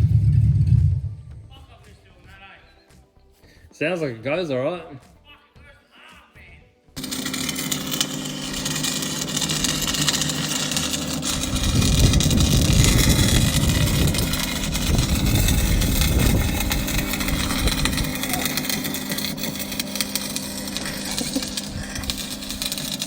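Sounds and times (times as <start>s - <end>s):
straight-six engine running: 0.0s - 1.5s, 7.0s - 23.0s.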